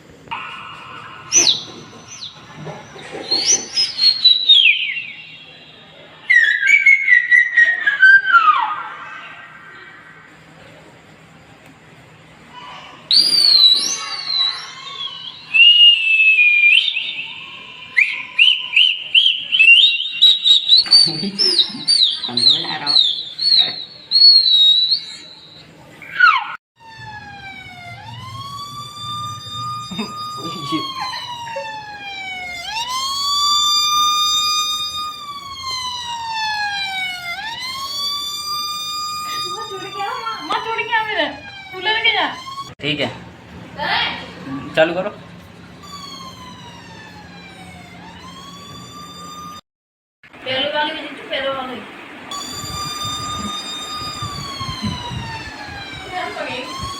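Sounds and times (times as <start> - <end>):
short rising chirps: 0.3 - 5.6, 13.1 - 26.5, 28.1 - 42.8, 45.8 - 49.6, 52.3 - 56.9
electronic siren wailing: 0.3 - 11.5, 13.1 - 49.6, 52.3 - 56.9
high-pitched gliding whistles: 0.3 - 11.6, 12.6 - 26.6, 27.4 - 42.8, 44.5 - 49.6, 52.3 - 56.9.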